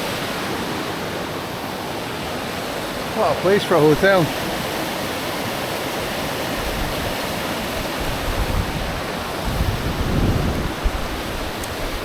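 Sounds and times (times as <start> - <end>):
wind buffeting microphone: 0.0 - 12.0
strong wind rushing: 6.6 - 12.0.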